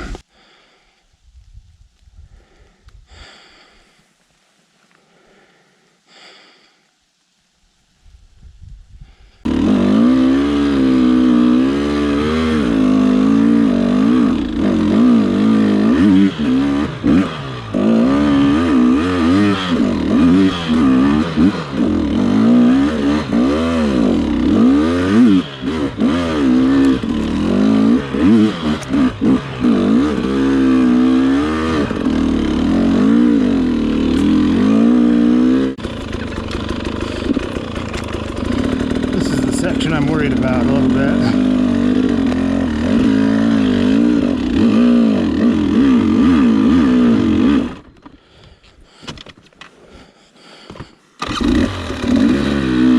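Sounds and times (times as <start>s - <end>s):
dirt bike engine revving: 9.4s - 48.0s, 51.2s - 52.9s.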